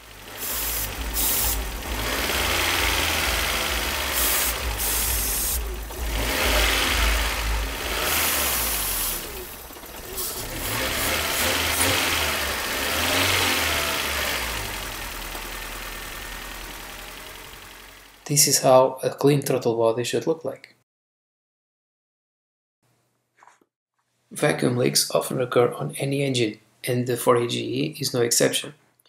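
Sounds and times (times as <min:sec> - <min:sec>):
car engine revving: 0:00.0 - 0:18.3
aerosol spray hisses: 0:00.4 - 0:01.6, 0:04.1 - 0:05.6.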